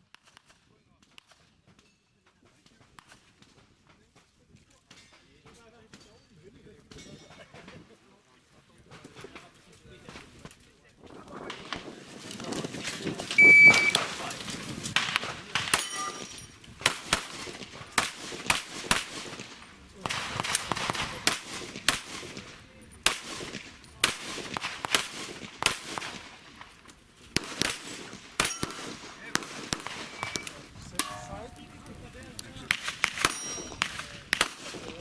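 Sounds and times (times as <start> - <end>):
shot timer beep: 13.4 - 14.0, 30.1 - 30.5
handgun shots: 27.4 - 31.2.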